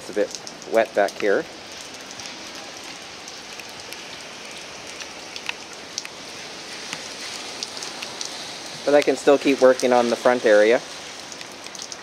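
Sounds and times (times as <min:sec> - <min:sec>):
raindrops ticking close by: 0:00.0 - 0:12.0
steady rain falling: 0:00.0 - 0:12.0.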